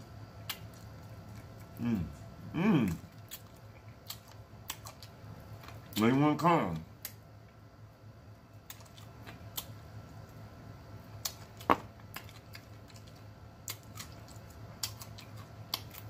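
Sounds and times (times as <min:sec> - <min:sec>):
faint low hum: 0:00.0 - 0:16.0
lip smacks while chewing: 0:02.9 - 0:05.9, 0:11.2 - 0:16.0.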